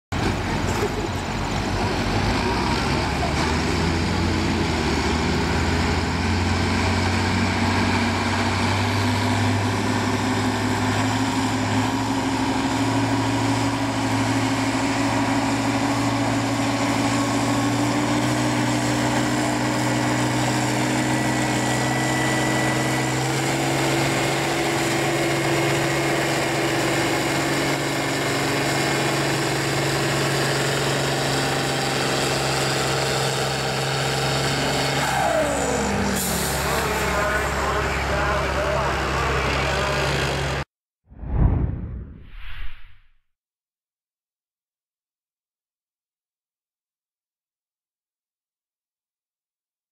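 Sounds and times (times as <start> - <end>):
tractor engine under heavy load: 0.1 - 40.6.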